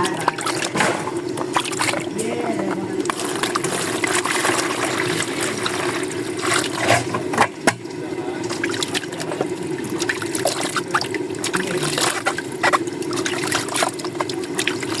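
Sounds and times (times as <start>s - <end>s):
water running and trickling: 0.0s - 15.0s.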